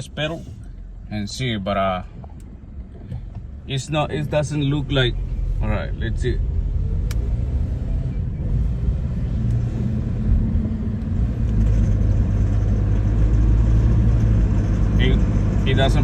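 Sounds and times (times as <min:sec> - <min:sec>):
car engine revving: 0:03.4 - 0:16.0.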